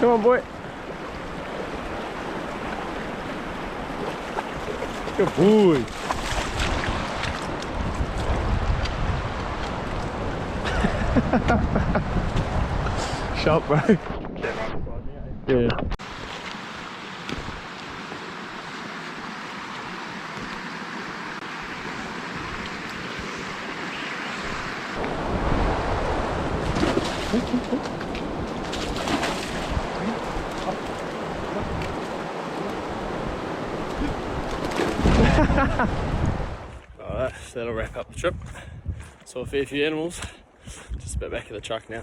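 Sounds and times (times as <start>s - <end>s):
running water: 0.0s - 8.6s, 16.0s - 36.6s
wind buffeting microphone: 0.8s - 16.0s, 21.8s - 42.0s.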